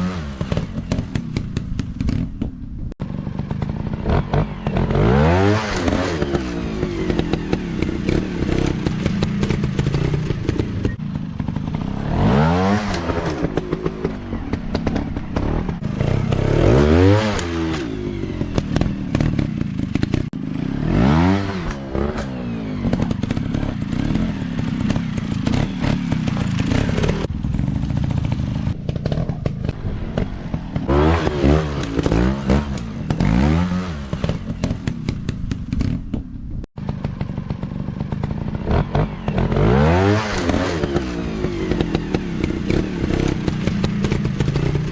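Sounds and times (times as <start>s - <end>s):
dirt bike engines revving: 3.0s - 36.0s, 36.8s - 44.9s.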